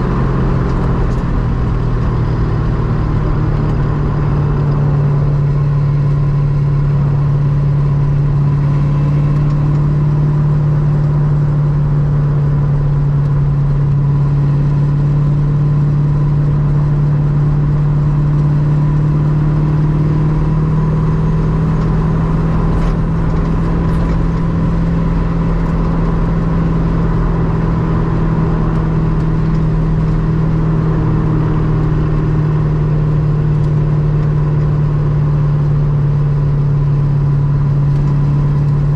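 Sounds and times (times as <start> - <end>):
car engine running steadily: 0.0 - 38.9.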